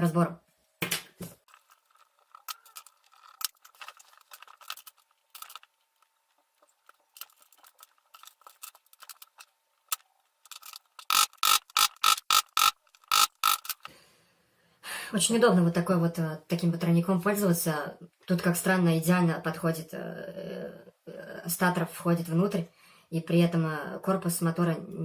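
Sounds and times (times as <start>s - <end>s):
clicks and scrapes of metal parts: 1.4s - 13.9s.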